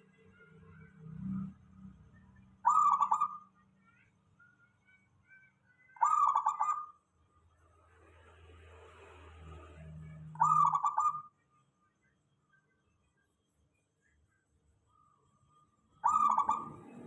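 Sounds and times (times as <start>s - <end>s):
faint bird chirps: 0.0s - 8.2s, 9.3s - 17.0s
dove cooing: 2.6s - 3.4s, 6.0s - 6.8s, 10.4s - 11.2s, 16.0s - 17.0s.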